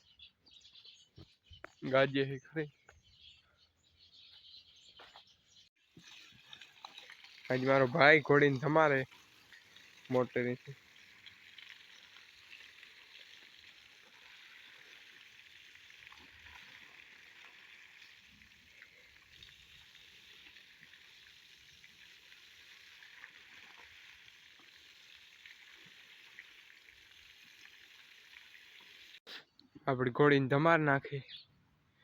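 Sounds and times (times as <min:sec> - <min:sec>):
hose spraying water: 0:05.8 - 0:29.2.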